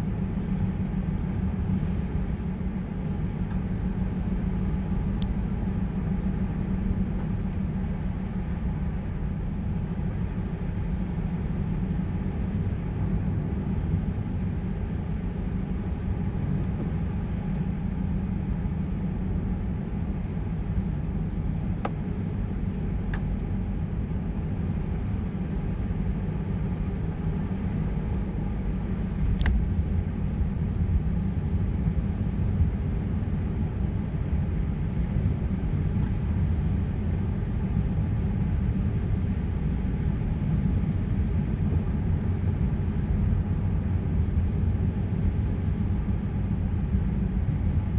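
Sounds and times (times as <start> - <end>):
car road and engine rumble: 0.0 - 47.9
faint ticks: 5.2 - 6.2, 29.2 - 29.8.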